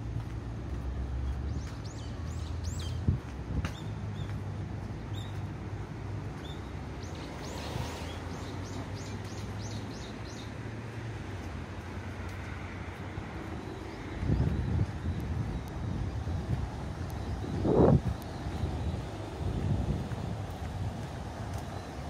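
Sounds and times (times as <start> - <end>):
steady low rumble: 13.0 - 22.0.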